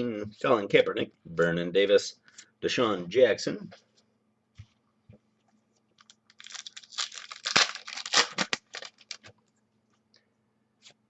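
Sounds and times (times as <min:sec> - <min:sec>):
wrapper tearing and crinkling: 0:06.0 - 0:09.3.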